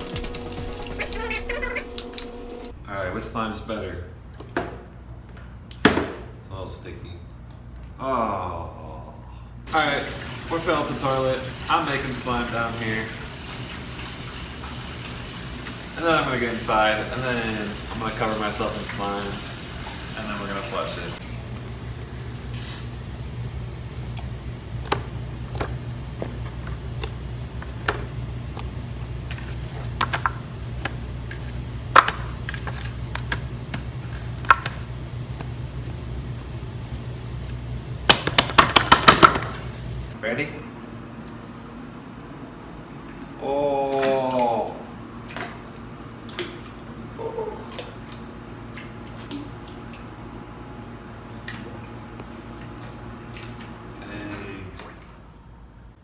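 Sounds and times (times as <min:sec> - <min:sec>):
steady low hum: 0:00.0 - 0:43.7.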